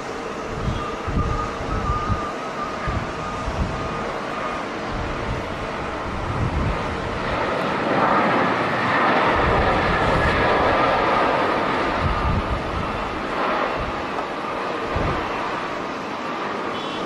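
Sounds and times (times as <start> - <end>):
wind buffeting microphone: 0.0 - 15.8
jet airliner engine: 0.0 - 17.0.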